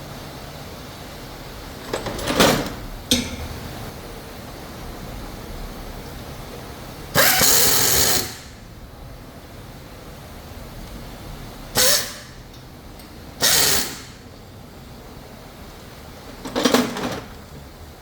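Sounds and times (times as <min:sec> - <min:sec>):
factory background noise: 0:00.0 - 0:18.0
power tool bursts: 0:07.2 - 0:08.6, 0:11.8 - 0:12.4, 0:13.4 - 0:14.2.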